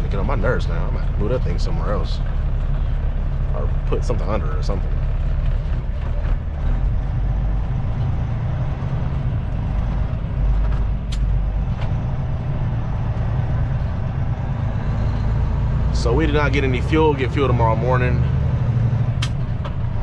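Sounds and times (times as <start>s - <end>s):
truck engine and road noise: 0.0s - 20.0s.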